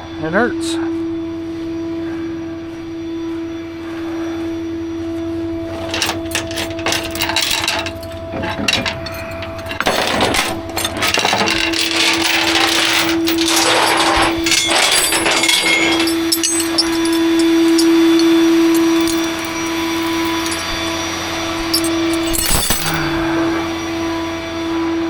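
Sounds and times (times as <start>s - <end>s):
metal clinking and clattering: 5.7s - 20.9s, 21.6s - 23.4s.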